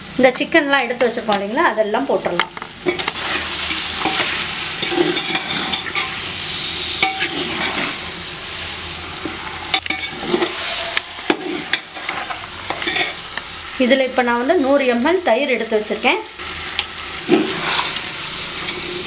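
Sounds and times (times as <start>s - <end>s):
chicken sizzling in a pot: 0.0s - 19.0s
metal ladle scraping a pot: 2.8s - 8.0s, 9.7s - 13.2s, 17.3s - 18.0s.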